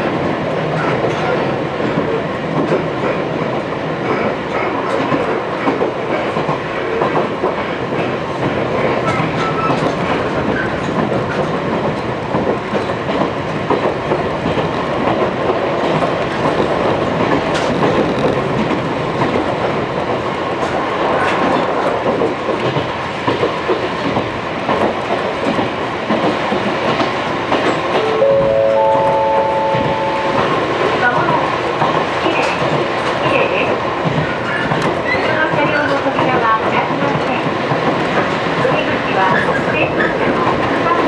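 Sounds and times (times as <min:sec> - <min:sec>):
train wheels rumbling on rail: 0:00.0 - 0:41.0
steady tones: 0:27.9 - 0:31.5.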